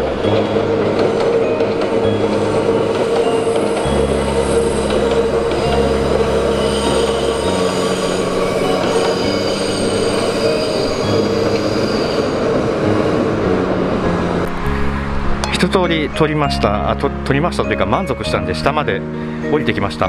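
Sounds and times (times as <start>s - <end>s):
electric train rumble and hum: 0.0s - 20.0s
high-pitched wheel squeal: 3.3s - 12.8s.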